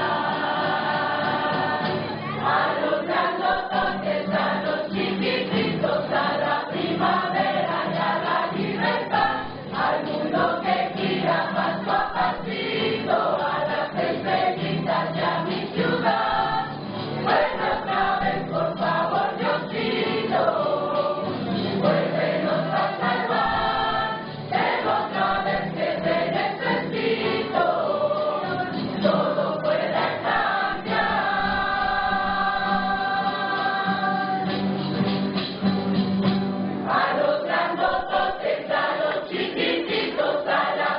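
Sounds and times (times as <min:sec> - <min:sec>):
choir singing: 0:00.0 - 0:34.6, 0:36.8 - 0:40.9.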